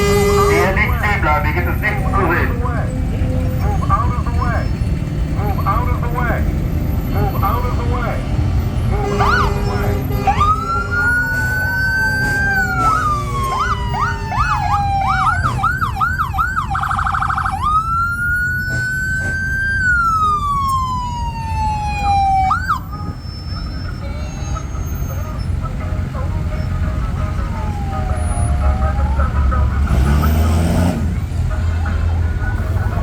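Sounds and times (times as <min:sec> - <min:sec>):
low engine rumble: 0:00.0 - 0:33.0
electronic siren wailing and yelping: 0:08.9 - 0:25.6, 0:26.5 - 0:30.8.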